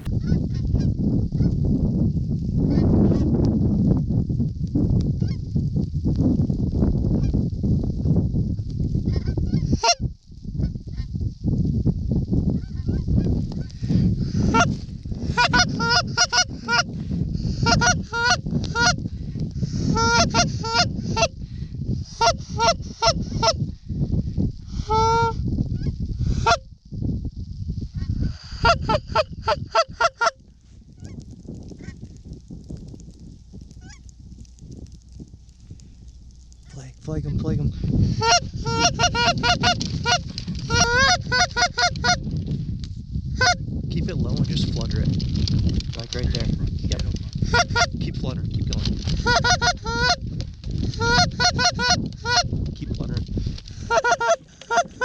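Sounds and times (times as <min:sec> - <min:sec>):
wind rumble on microphone: 0:00.0 - 0:55.0
goose honking: 0:15.4 - 0:16.9, 0:17.6 - 0:19.0, 0:20.0 - 0:21.3, 0:38.2 - 0:42.2, 0:49.2 - 0:50.2, 0:53.9 - 0:55.0.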